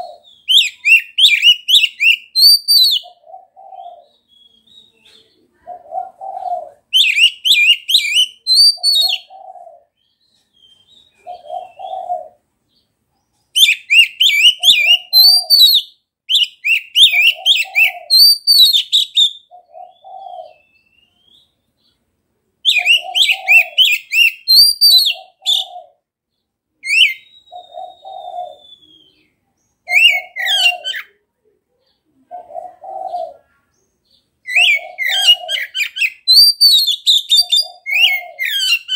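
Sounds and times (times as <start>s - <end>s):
bird singing whistled phrases: 0.2s - 3.1s, 6.9s - 9.3s, 13.6s - 21.6s, 22.7s - 25.7s, 26.8s - 29.3s, 29.9s - 31.1s, 34.5s - 38.9s.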